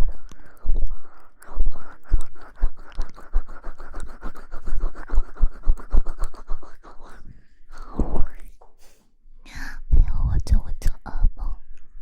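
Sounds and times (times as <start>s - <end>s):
soft low thumps: 9.8s - 10.7s.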